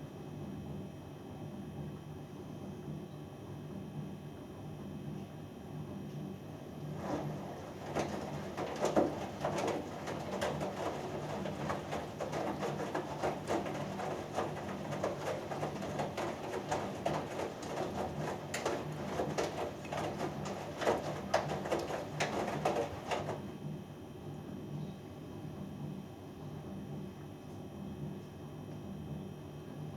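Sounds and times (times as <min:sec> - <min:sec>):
washing machine motor hum: 0:05.9 - 0:27.2
laundry and water tumbling: 0:06.7 - 0:23.6.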